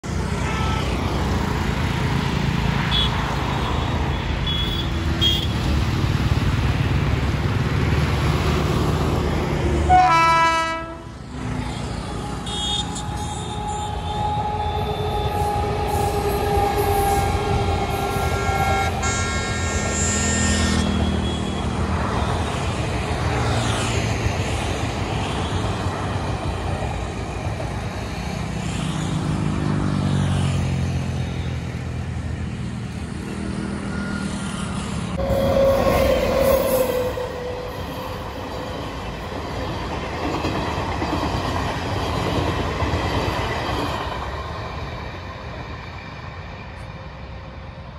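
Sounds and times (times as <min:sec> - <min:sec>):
train rumbling past: 0:00.0 - 0:47.9
locomotive air horn: 0:00.4 - 0:01.0, 0:09.8 - 0:21.6, 0:35.2 - 0:38.4.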